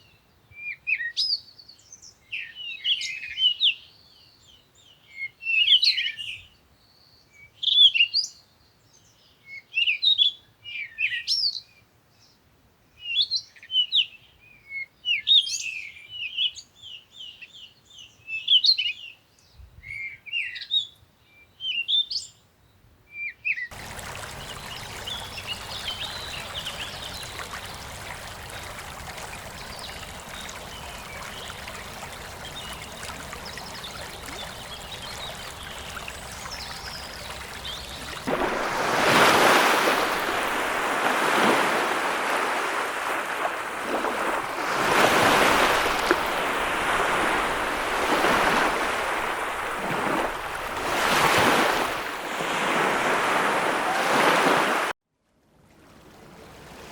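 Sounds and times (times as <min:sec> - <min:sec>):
songbird chirping: 0:13.1 - 0:52.8
stream rushing: 0:23.7 - 0:54.9.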